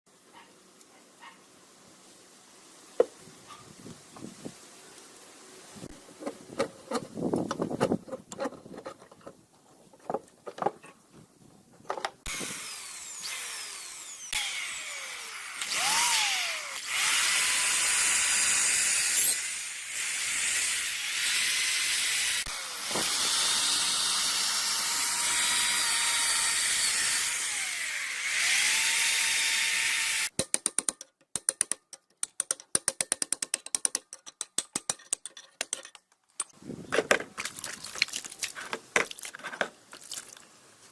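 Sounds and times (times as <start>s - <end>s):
power tool motor whining: 12.3s - 30.3s.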